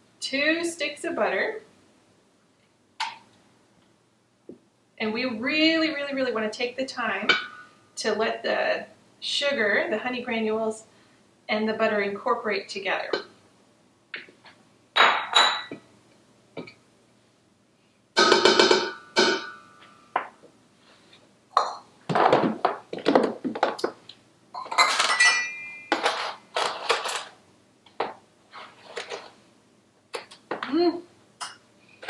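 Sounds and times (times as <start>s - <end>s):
dishes clinking and clattering: 15.0s - 15.8s, 24.6s - 27.3s.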